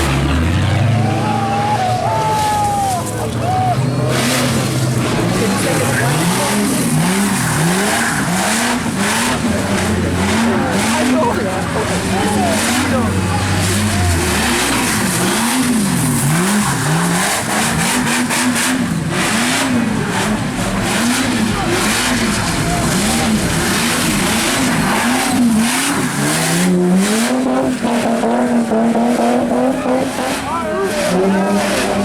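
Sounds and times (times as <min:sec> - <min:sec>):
car engine revving: 0:00.0 - 0:32.0
spinning tyres hissing: 0:03.9 - 0:29.2.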